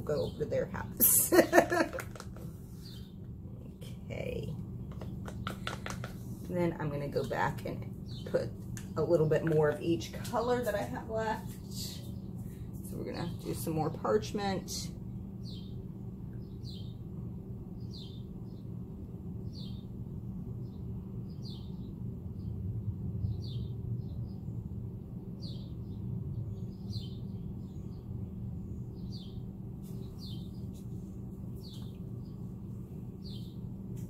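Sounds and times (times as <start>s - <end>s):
steady low hum: 0.0s - 34.0s
small songbirds chirping: 2.6s - 6.2s, 7.2s - 9.2s, 15.4s - 17.1s, 17.8s - 18.8s, 19.4s - 20.0s, 20.6s - 34.0s.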